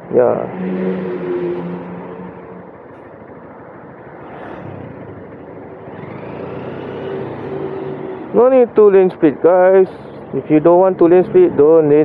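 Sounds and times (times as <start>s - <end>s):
road traffic noise: 0.0s - 12.0s
motorcycle engine running: 0.9s - 9.1s.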